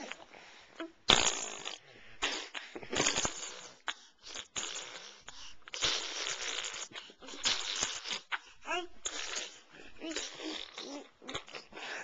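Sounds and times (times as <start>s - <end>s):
breathy sputtering mouth noises: 0.0s - 12.0s.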